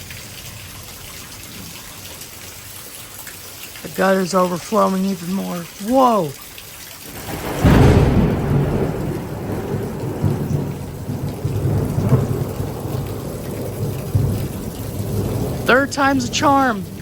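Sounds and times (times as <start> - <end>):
heavy rain: 0.0 - 17.0
sharp thunderclap: 7.1 - 17.0
thunder rumbling: 7.1 - 17.0.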